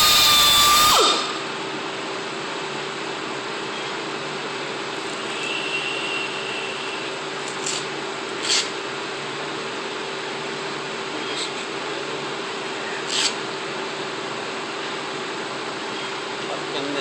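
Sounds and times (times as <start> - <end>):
electric power tool humming: 0.0 - 1.6
sharp scraping noises: 7.6 - 8.8, 13.1 - 13.4.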